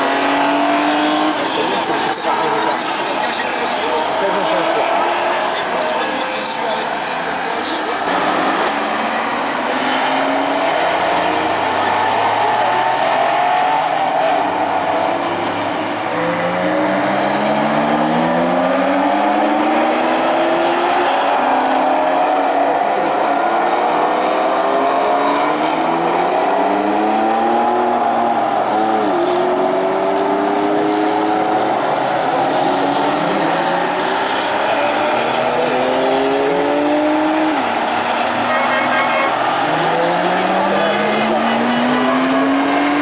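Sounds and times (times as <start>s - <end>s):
race car engines accelerating: 0.0s - 43.0s.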